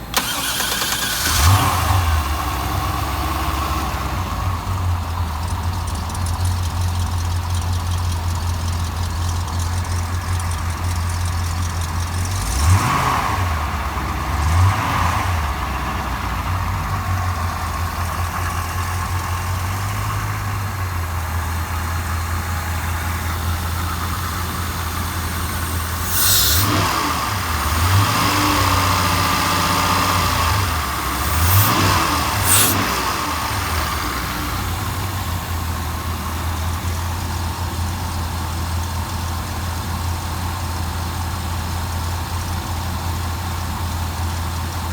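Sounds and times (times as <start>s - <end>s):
engine revving: 0.2s - 17.5s, 21.9s - 37.3s
boat engine idling: 4.0s - 12.5s, 15.5s - 27.8s.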